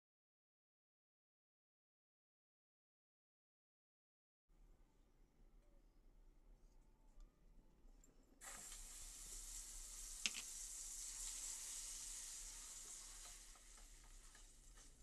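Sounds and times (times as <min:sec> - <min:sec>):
paste sizzling in hot oil: 0:08.4 - 0:15.0
wooden spatula stirring: 0:12.6 - 0:15.0.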